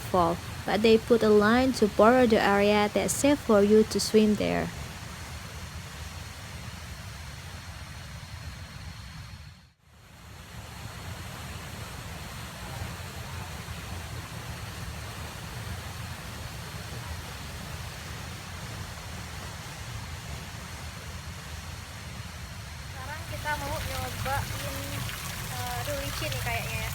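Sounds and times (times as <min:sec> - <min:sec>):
waterfall rushing: 0:00.0 - 0:04.7, 0:23.0 - 0:26.9.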